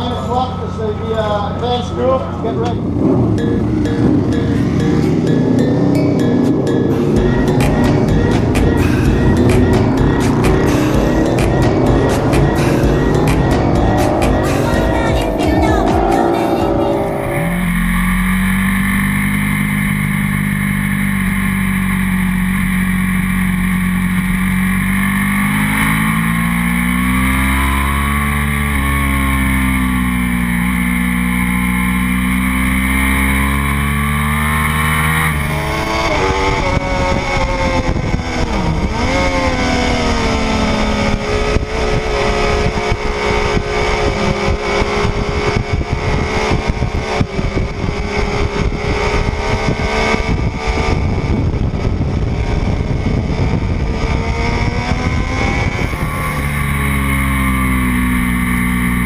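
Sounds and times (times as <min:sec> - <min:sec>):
motorcycle engine revving: 0:00.0 - 0:59.0
wind rush: 0:35.4 - 0:57.0.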